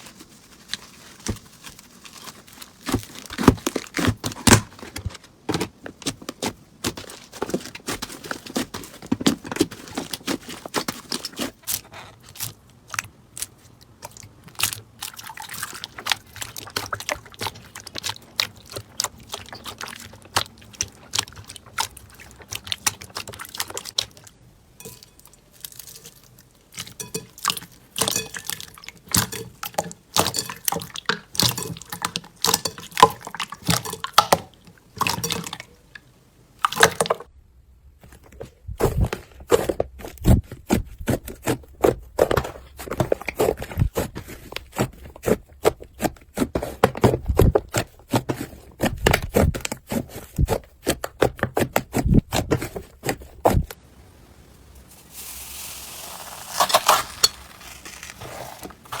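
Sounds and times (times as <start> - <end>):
slime squishing with wet pops: 5.4 - 24.4, 25.0 - 36.0.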